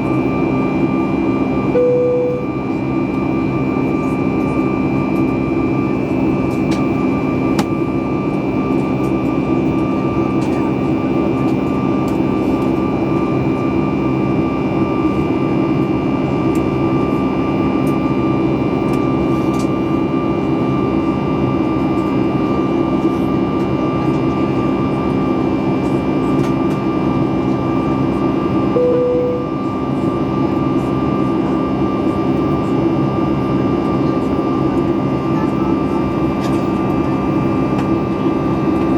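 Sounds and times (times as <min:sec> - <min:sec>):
airplane cabin engine roar: 0:00.0 - 0:38.9
single tone: 0:01.6 - 0:03.3, 0:28.7 - 0:29.8.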